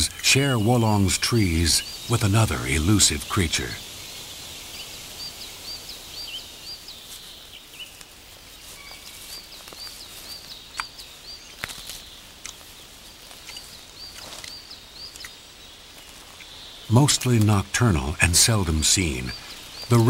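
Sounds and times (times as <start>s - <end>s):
small bird chirping: 0.0s - 20.0s
faint sharp clicks: 10.7s - 12.7s.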